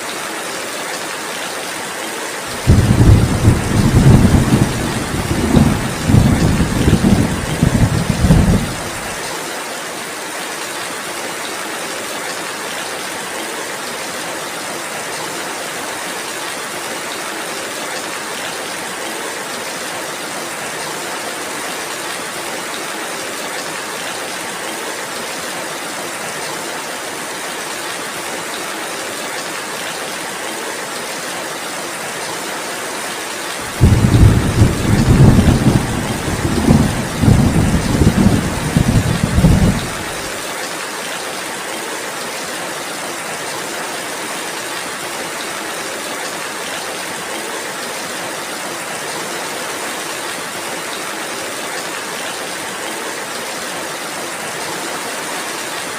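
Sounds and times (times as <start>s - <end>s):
steady rainfall: 0.0s - 55.9s
rolling thunder rumbles: 2.6s - 9.1s, 33.7s - 40.3s.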